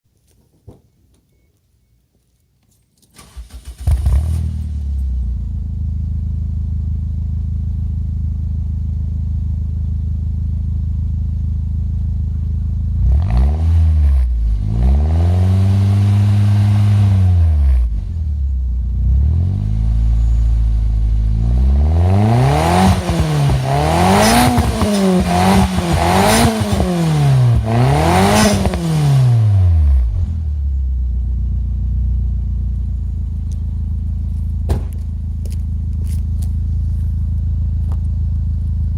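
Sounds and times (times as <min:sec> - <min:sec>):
car engine starting and idling: 0:03.0 - 0:14.8, 0:15.4 - 0:38.9
engine revving: 0:03.3 - 0:06.0, 0:12.9 - 0:30.6.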